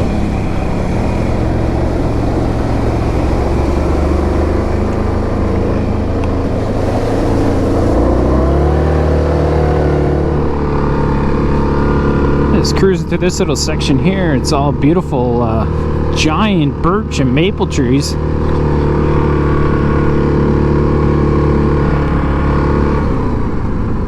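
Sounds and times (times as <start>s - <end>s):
steady rush of noise: 0.0s - 17.1s
atv engine running: 0.0s - 24.0s.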